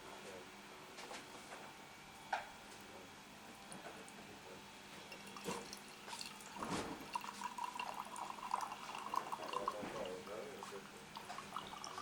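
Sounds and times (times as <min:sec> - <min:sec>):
water trickling into porcelain: 0:05.0 - 0:12.0.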